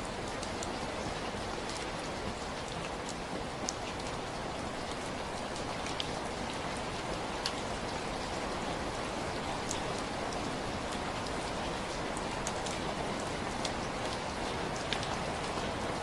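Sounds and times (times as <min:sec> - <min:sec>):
raindrops ticking: 0:00.0 - 0:16.0
steady rain falling: 0:00.0 - 0:16.0.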